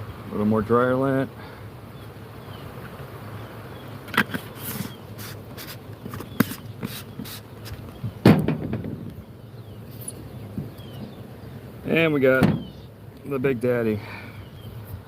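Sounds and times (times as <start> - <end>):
short rustle: 4.2 - 8.0
loud knock: 8.2 - 9.0, 12.4 - 12.8.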